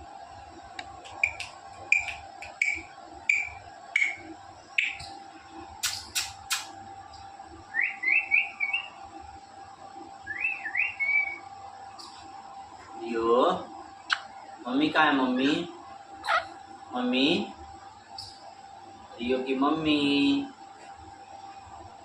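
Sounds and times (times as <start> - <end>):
faint steady hum: 0.0 - 22.0
parrot chirping: 1.2 - 4.2, 4.8 - 5.1, 7.7 - 9.0, 10.3 - 11.4, 16.2 - 16.6
parrot sharp clicks: 5.8 - 6.7.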